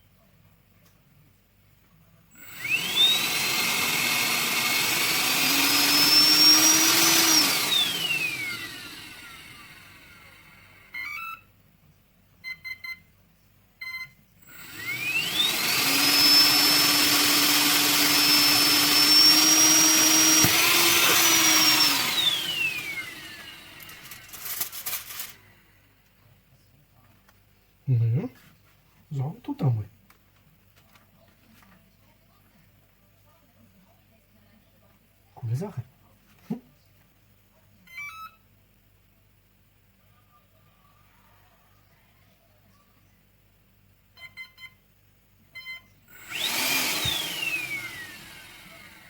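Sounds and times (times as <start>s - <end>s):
vacuum motor whining: 2.4s - 11.3s, 14.4s - 25.5s, 46.1s - 49.0s.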